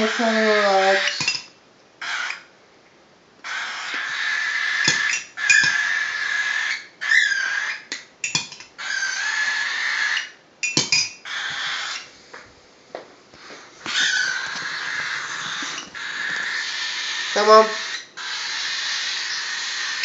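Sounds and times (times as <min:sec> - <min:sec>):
cockatiel chick begging cries: 0:02.0 - 0:02.5, 0:03.4 - 0:07.9, 0:08.8 - 0:10.4, 0:11.3 - 0:12.1, 0:13.8 - 0:20.0.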